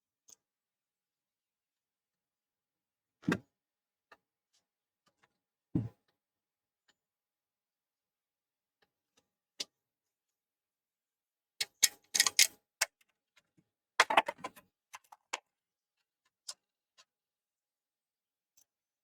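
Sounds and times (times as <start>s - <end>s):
clatter of small parts and tools: 11.6s - 15.5s.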